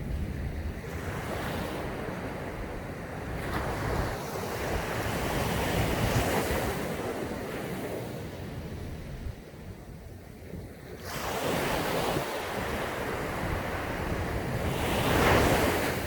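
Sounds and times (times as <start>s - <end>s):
wind rumbling on microphone: 0.0s - 16.0s
sea waves breaking on beach: 10.8s - 16.0s.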